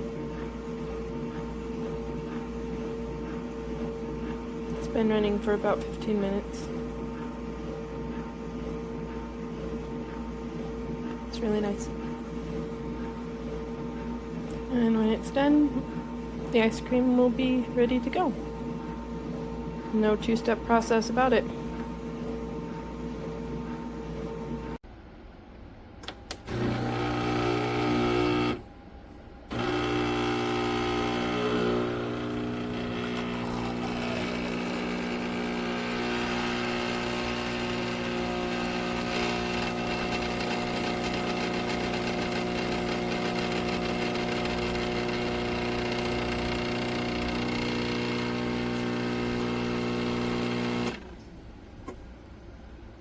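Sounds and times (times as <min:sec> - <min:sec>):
ice cream maker motor humming: 0:26.3 - 0:28.7, 0:29.5 - 0:51.1.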